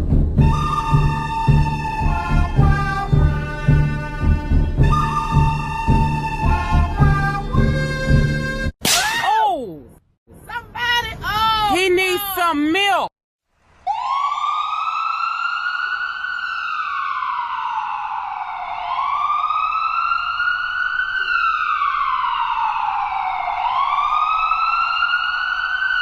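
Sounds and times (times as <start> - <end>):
emergency vehicle siren wailing: 0.4 - 8.7, 13.8 - 26.0.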